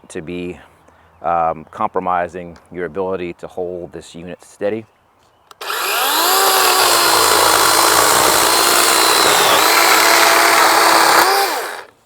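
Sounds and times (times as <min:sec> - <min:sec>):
chainsaw motor winding down: 0:05.6 - 0:12.0
electric chainsaw cutting wood: 0:05.6 - 0:12.0.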